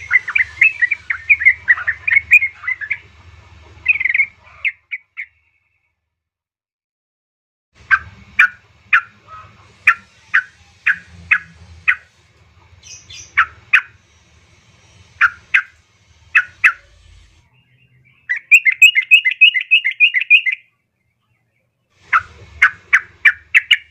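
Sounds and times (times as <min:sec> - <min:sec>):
bird chattering trill: 0:00.0 - 0:03.0, 0:03.8 - 0:05.4, 0:12.8 - 0:14.0, 0:15.2 - 0:17.0, 0:18.1 - 0:20.7, 0:22.1 - 0:23.9.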